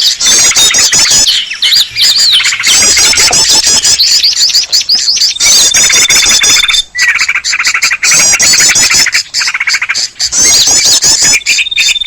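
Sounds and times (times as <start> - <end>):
songbirds chorus chattering: 0.0 - 12.0
steady high trill: 2.4 - 4.2.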